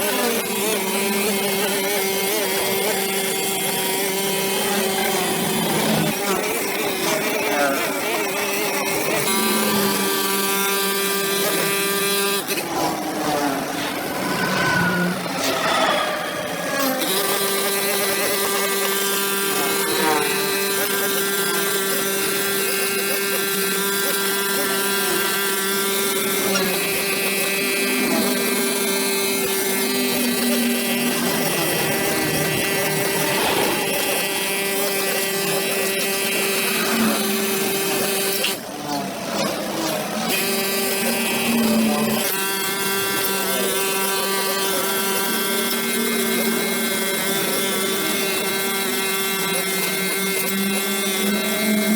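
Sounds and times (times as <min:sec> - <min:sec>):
brush cutter engine running: 0:16.5 - 0:51.9.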